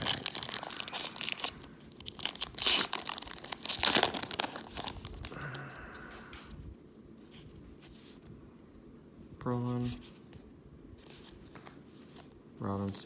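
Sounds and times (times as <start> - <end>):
card pack wrapper tearing and crinkling: 0.0 - 5.6.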